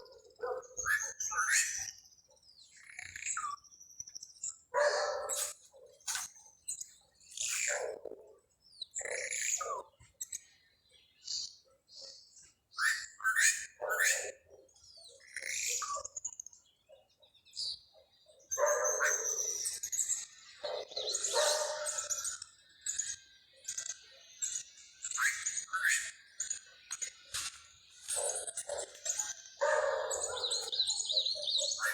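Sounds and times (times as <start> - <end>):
birds chirping and singing: 0.0 - 31.9
louder lower bird calls: 28.1 - 31.9.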